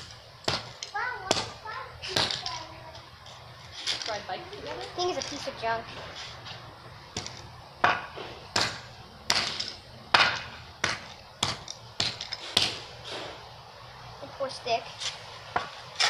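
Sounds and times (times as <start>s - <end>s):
toy car being smashed: 8.6s - 12.8s.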